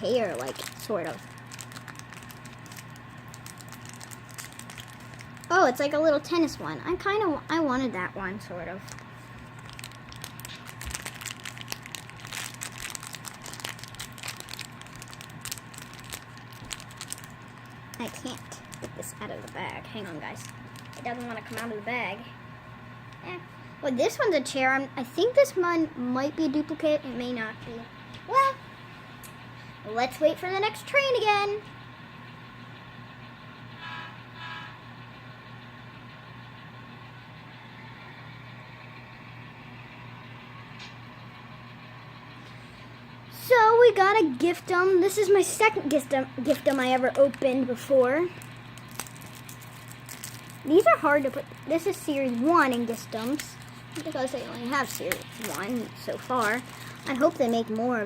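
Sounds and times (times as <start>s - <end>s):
plastic bag crinkling: 0.0s - 6.0s, 8.7s - 21.9s, 44.3s - 58.0s
low hum: 0.0s - 23.8s, 44.8s - 58.0s
toy train whistle toots: 33.8s - 34.8s.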